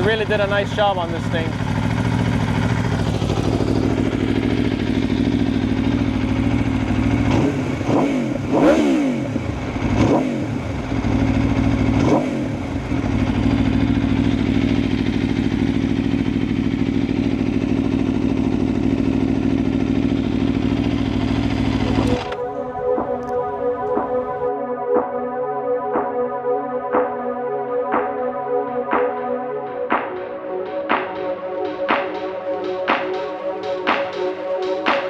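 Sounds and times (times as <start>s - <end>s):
motorcycle engine idling and revving: 0.0s - 24.5s.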